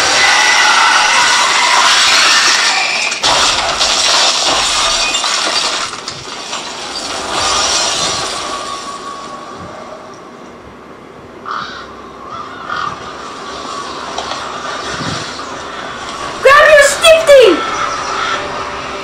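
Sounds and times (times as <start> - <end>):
loud shattering crash: 0.0 - 10.0.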